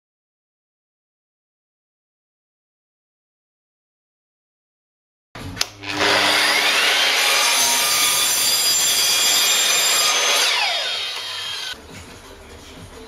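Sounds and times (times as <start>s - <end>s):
mitre saw whining and cutting wood: 5.8s - 11.8s.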